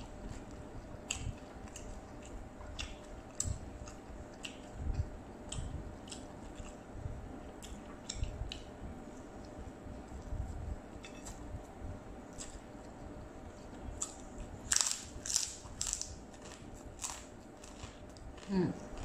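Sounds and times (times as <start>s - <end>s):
chewing crunchy food: 0.0s - 11.6s, 12.2s - 19.0s.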